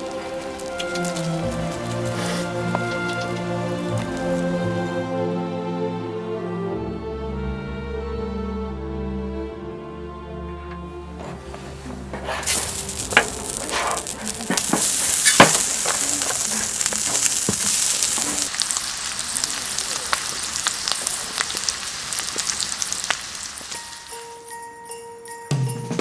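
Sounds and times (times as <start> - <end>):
oil popping and spattering: 0.0 - 4.4, 12.4 - 23.8
food sizzling in a hot pan: 12.4 - 24.2.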